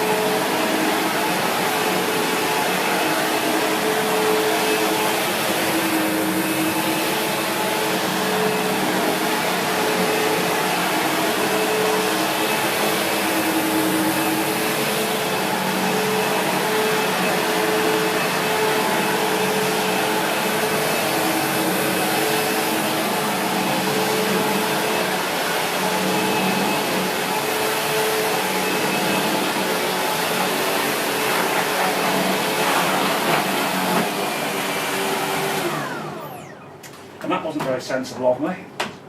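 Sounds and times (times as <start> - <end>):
upright vacuum cleaner running: 0.0 - 37.8.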